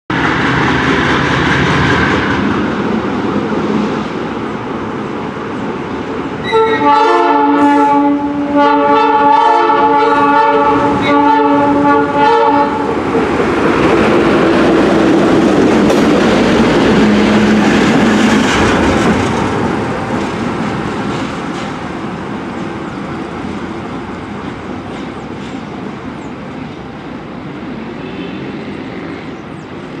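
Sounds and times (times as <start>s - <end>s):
diesel locomotive engine under load: 0.1s - 30.0s
rail noise: 0.1s - 30.0s
train chime horn blasts: 6.4s - 12.9s.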